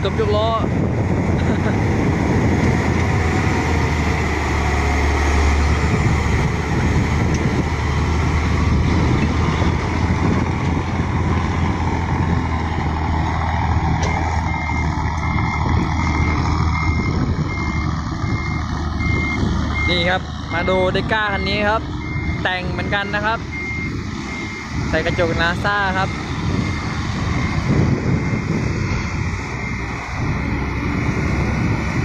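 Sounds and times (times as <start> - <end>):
heavy diesel engine running: 0.0 - 32.0
reversing alarm beeps: 14.0 - 20.9, 22.0 - 28.6, 29.6 - 30.0.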